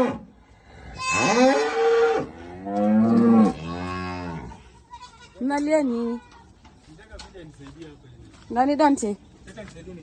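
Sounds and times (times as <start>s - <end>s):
cow mooing: 1.0s - 4.6s.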